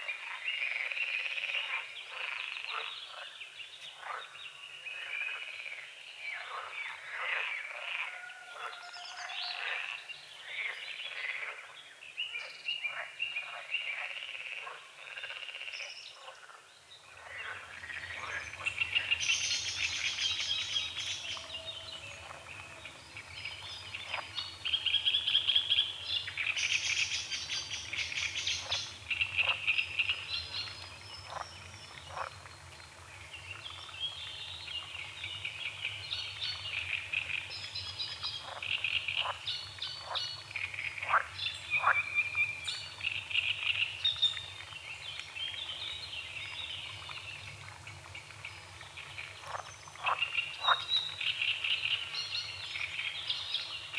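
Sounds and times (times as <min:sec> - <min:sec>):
frogs croaking: 0:00.0 - 0:33.0, 0:38.1 - 0:44.2, 0:46.8 - 0:53.9.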